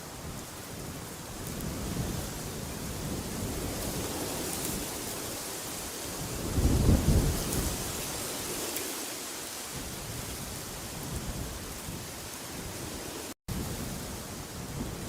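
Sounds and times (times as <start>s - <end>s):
rushing wind: 0.0s - 15.0s
wind gust rumble: 0.2s - 8.6s.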